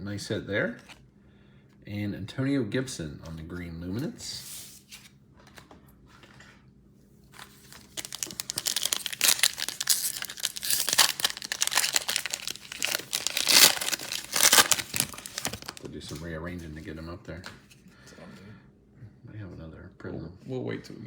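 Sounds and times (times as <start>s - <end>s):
wrapper tearing and crinkling: 7.4s - 15.9s.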